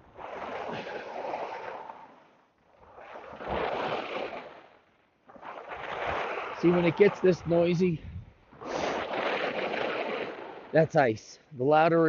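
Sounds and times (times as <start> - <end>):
skis scraping on ice: 5.3 - 8.0.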